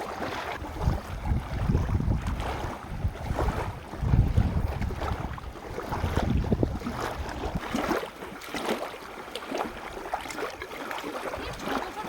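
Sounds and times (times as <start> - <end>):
water lapping at river's edge: 0.0 - 12.0
wind buffeting microphone: 0.5 - 7.9.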